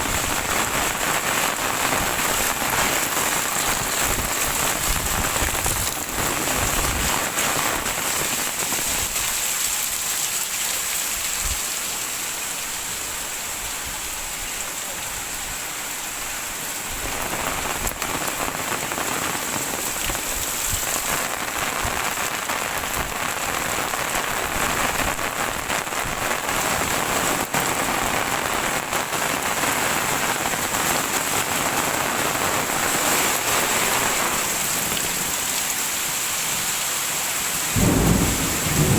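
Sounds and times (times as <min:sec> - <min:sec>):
heavy rain splashing: 0:00.0 - 0:38.9.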